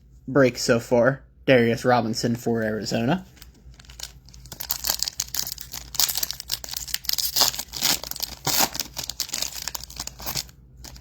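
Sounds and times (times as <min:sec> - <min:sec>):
foil wrapper tearing and crinkling: 0:03.4 - 0:11.0.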